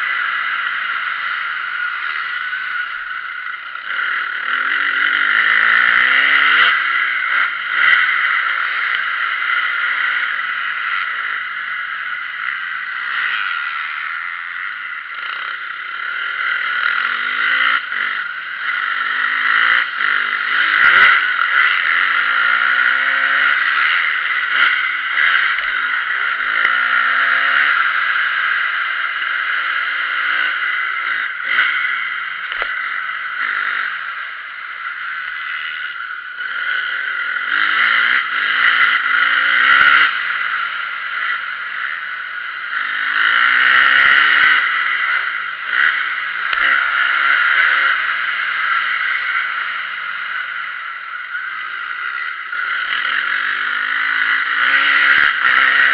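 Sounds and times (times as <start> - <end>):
motocross bike engine revving: 0.0 - 55.9.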